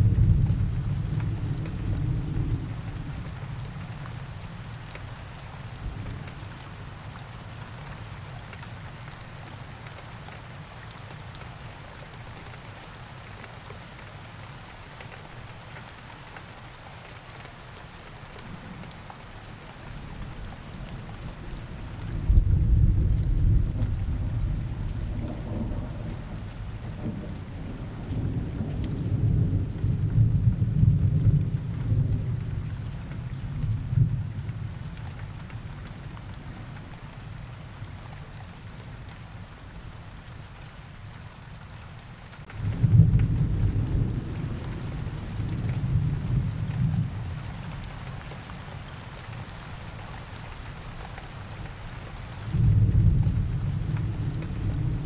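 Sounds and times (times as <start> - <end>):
low rolling thunder: 0.0 - 3.3, 20.7 - 34.9, 42.5 - 47.8, 52.5 - 55.0
steady rain: 0.0 - 55.0.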